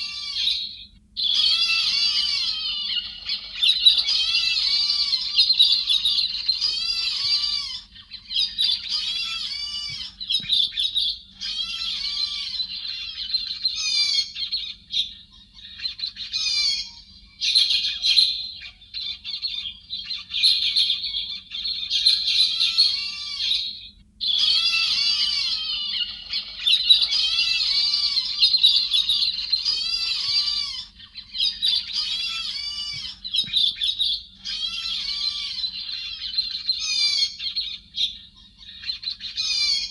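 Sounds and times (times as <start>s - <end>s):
bird chattering and squawking: 0.0s - 39.9s
faint steady hum: 0.0s - 39.9s.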